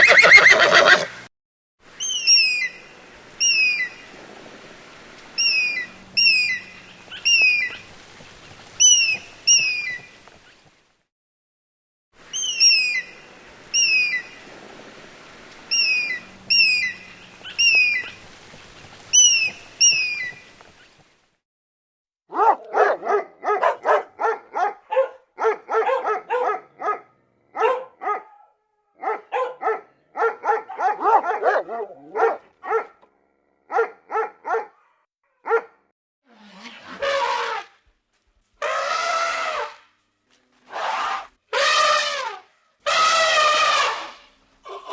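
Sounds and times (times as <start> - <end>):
short high downward calls: 5.4 - 7.8, 12.3 - 14.3, 15.7 - 18.2, 40.7 - 44.9
dog barking: 22.3 - 33.0, 33.7 - 35.9.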